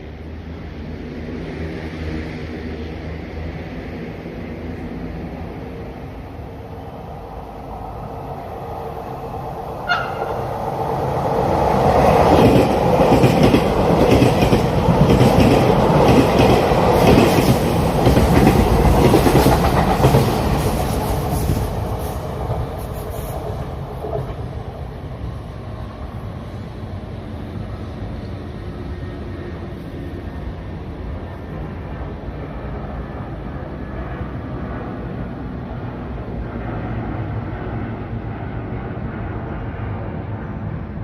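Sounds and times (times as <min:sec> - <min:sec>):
train passing with wheels clacking: 0:00.0 - 0:41.0.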